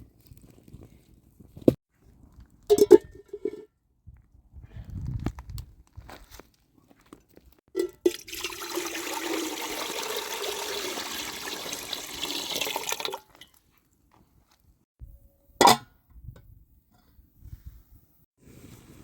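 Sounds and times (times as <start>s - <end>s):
water pouring: 7.8s - 13.6s.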